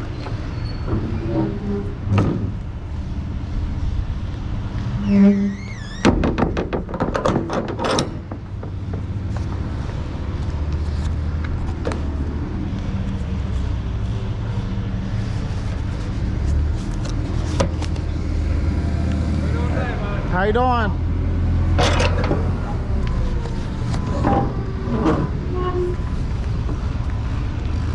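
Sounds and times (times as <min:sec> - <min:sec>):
rattling clattering knocks: 0:06.0 - 0:09.2
truck engine idling: 0:17.2 - 0:27.9.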